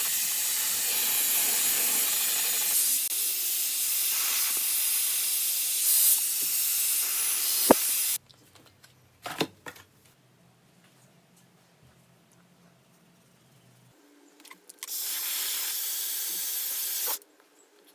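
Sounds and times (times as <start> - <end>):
hot-air brush blowing hiss: 0.0 - 8.2, 14.9 - 17.2.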